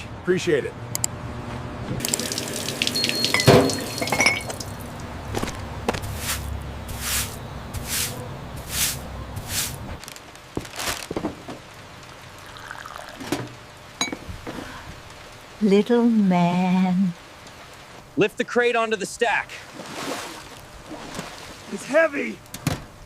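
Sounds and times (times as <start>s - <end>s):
low steady hum: 0.0s - 23.0s
water dripping: 2.0s - 5.2s.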